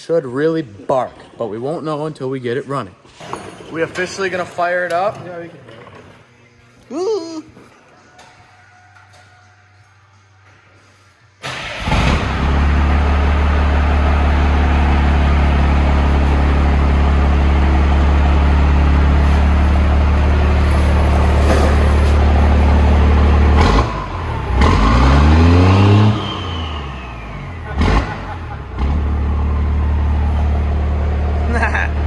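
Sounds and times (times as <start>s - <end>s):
diesel engine idling: 11.4s - 32.0s.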